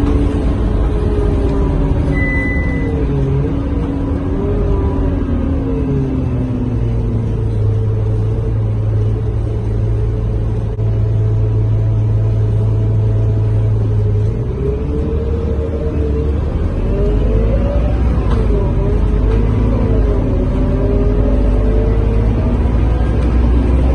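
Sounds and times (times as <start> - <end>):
bus drivetrain whine: 0.0 - 23.9
bus engine humming: 0.0 - 23.9.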